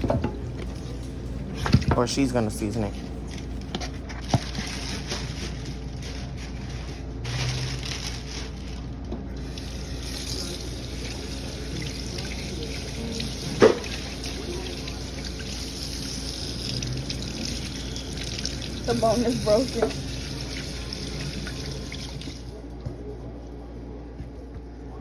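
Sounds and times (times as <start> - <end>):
tap water running into sink: 9.4 - 22.5.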